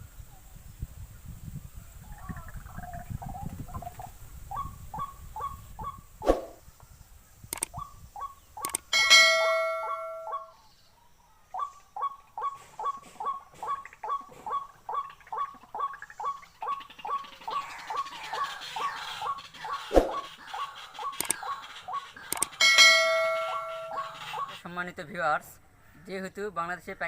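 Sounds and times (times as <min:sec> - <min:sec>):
sharp clicks: 0:07.5 - 0:07.8, 0:08.6 - 0:08.9, 0:21.1 - 0:21.5, 0:22.2 - 0:22.6
bird croaking call: 0:07.7 - 0:10.6, 0:11.5 - 0:24.7
bright ringing tone: 0:08.9 - 0:10.5, 0:22.6 - 0:24.1.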